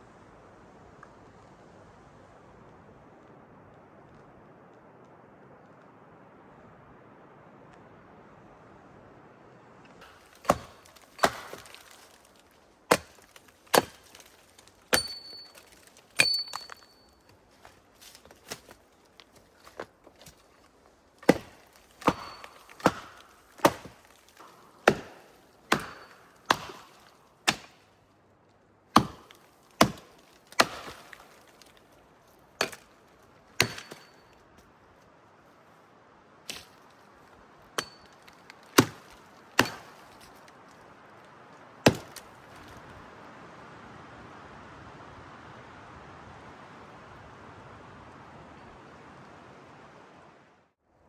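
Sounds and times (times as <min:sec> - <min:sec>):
axe chopping wood: 0:10.0 - 0:16.9, 0:17.6 - 0:20.4, 0:21.2 - 0:27.9, 0:28.9 - 0:31.8, 0:32.6 - 0:33.0, 0:33.6 - 0:34.3, 0:36.5 - 0:36.9, 0:37.8 - 0:40.4, 0:41.8 - 0:42.8.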